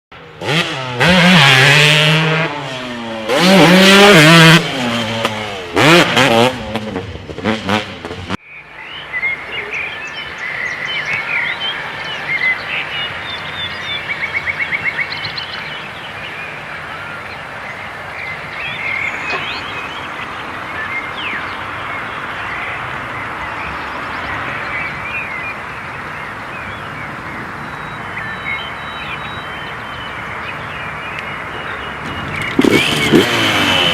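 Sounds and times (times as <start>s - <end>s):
motocross bike revving: 0.2s - 8.4s, 31.8s - 33.9s
birds chirping: 0.4s - 33.9s.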